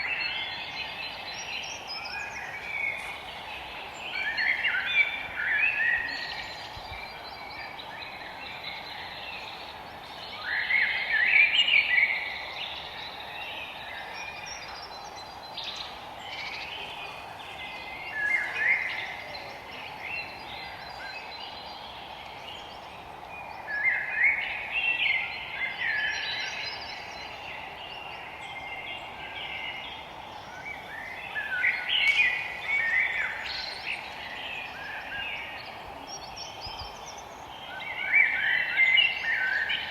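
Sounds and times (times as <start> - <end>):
songbirds warbling: 0.0 - 39.9
steady background hiss: 0.0 - 39.9.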